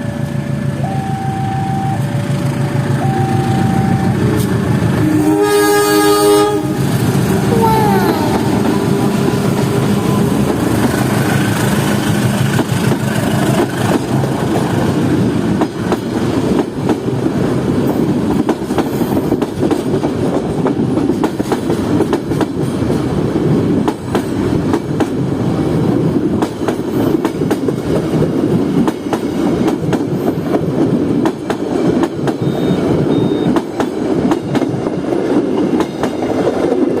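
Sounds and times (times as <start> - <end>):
train wheels rumbling: 1.6 - 37.0
wheels clacking over rail joints: 8.5 - 23.0.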